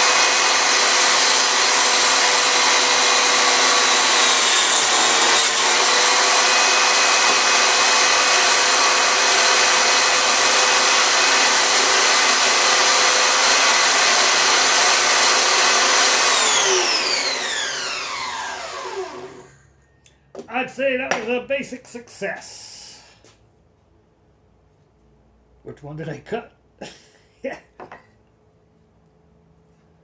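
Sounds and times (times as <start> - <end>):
table saw whining: 0.0 - 19.7.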